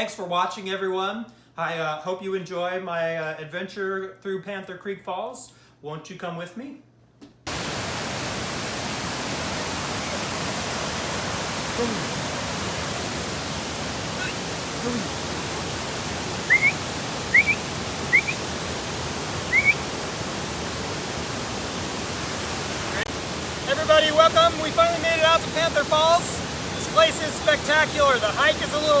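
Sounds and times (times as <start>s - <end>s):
waterfall roaring: 7.5s - 29.0s
short rising high chirps: 16.5s - 18.4s, 19.5s - 19.8s.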